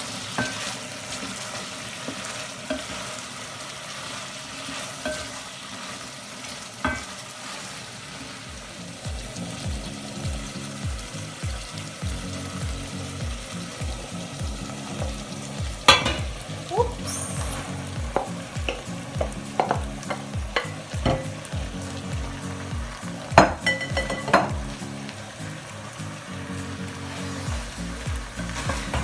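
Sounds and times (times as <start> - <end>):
spatula scraping a pan: 0.0 - 9.7, 27.1 - 29.0
rice sizzling in a pan: 0.0 - 29.0
steady low beat: 9.1 - 25.0, 27.5 - 29.0.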